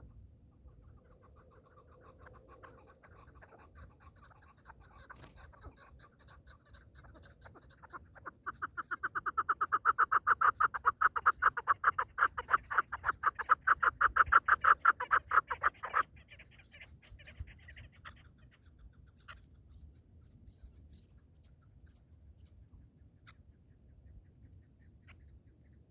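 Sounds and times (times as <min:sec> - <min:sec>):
partridge clucking call: 0:01.5 - 0:19.4.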